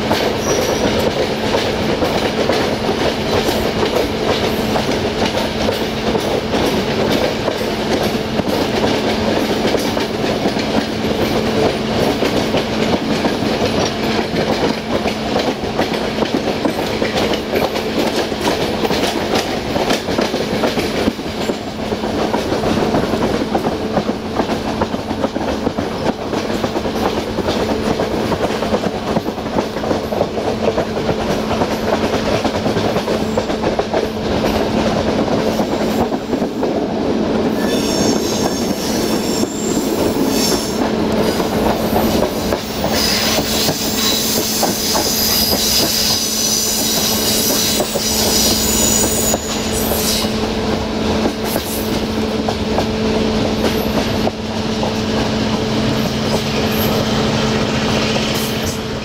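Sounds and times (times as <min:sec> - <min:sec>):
train wheels clicking over joints: 0:00.0 - 0:59.0
high-pitched wheel squeal: 0:00.4 - 0:00.9, 0:37.6 - 0:40.8, 0:42.9 - 0:50.4.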